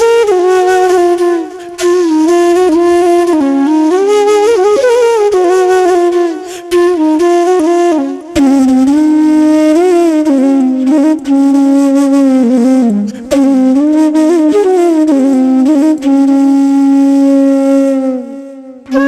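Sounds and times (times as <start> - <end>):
solo flute music: 0.0 - 19.0.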